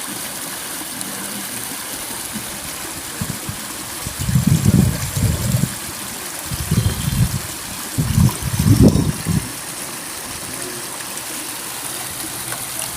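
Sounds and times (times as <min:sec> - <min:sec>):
stream trickling: 0:00.0 - 0:12.9.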